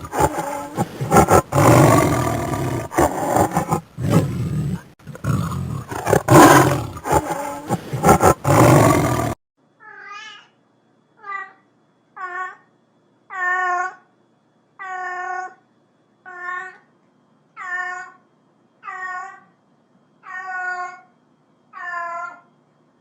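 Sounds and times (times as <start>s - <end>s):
big cat roaring: 0.0s - 9.4s.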